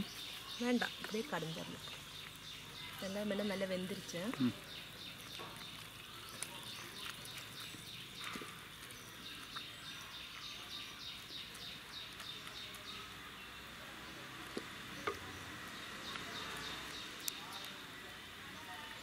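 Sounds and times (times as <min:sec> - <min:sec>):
bird chirping: 0:00.0 - 0:19.0.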